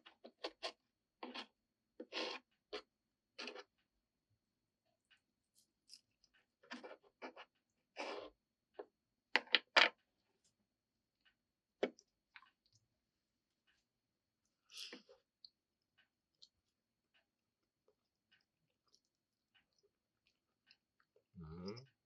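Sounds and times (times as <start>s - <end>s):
objects clicking and scraping: 0.0s - 3.8s, 5.9s - 10.1s.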